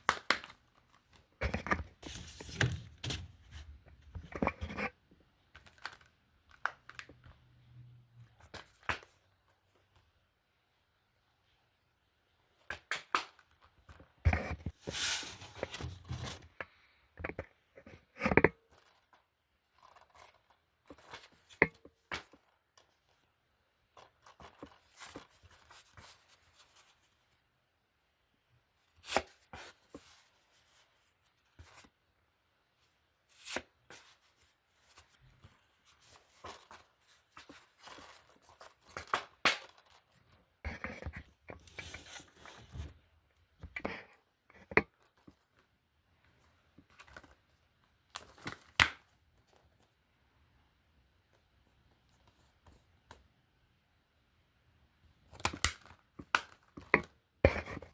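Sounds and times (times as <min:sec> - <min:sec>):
rustling and scraping: 0:00.9 - 0:05.0, 0:13.9 - 0:23.3, 0:33.3 - 0:43.1.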